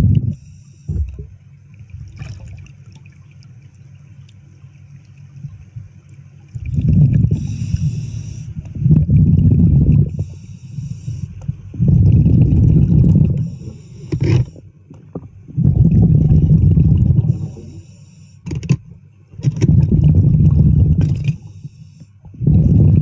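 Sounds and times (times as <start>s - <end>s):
exhaled bubbles rushing: 0.0s - 3.5s, 6.5s - 8.0s, 8.7s - 10.2s, 11.7s - 14.5s, 15.5s - 17.7s, 19.4s - 21.4s, 22.3s - 23.0s
regulator hiss on inhale: 0.3s - 1.0s, 7.3s - 8.6s, 10.1s - 11.6s, 13.4s - 14.7s, 17.2s - 18.5s, 21.3s - 22.3s.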